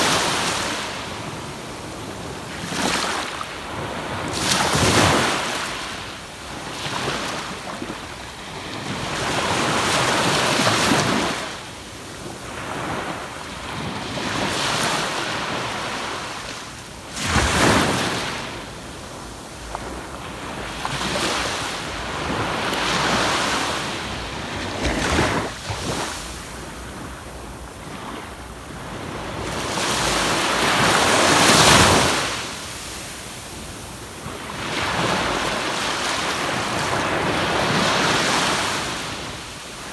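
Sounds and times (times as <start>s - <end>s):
wind rumbling on microphone: 17.3s - 39.4s
surf breaking on beach: 19.8s - 33.7s.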